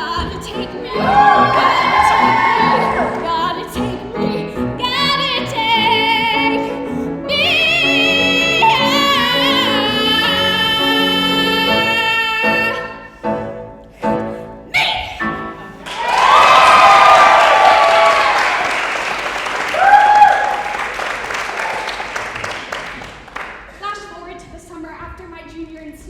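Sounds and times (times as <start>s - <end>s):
woman singing operatically: 0.0s - 13.1s
piano chords: 0.0s - 16.2s.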